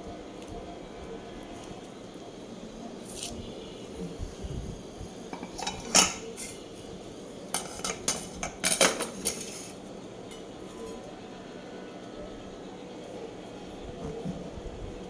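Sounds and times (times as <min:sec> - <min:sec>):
cutlery clinking on a plate: 0:05.3 - 0:06.6, 0:07.5 - 0:10.5.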